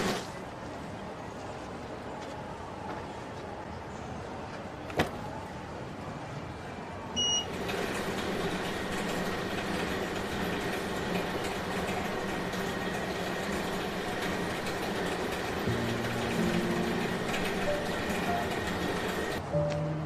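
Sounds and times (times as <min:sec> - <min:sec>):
mechanical background hum: 0:00.0 - 0:20.0
short electronic beep: 0:07.2 - 0:07.5.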